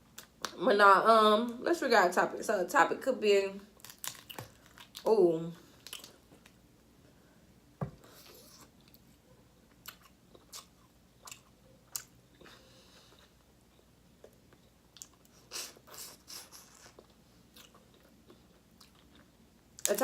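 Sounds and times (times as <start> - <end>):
person chewing food: 3.8 - 5.0, 5.7 - 6.6, 9.7 - 19.9.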